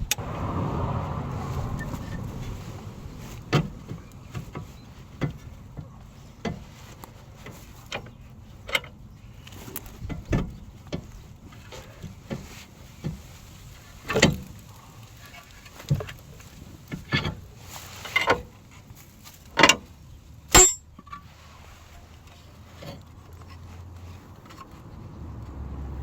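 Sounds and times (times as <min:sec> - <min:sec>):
tools and car parts knocking: 0:20.6 - 0:21.1.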